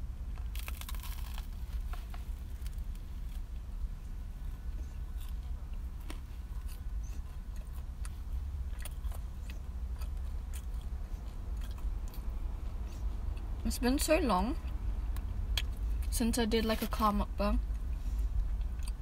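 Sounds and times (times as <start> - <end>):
low car cabin hum: 0.0 - 19.0
toasted bread crunching: 0.3 - 3.6
chewing toasted sandwich: 0.3 - 13.6, 17.6 - 19.0.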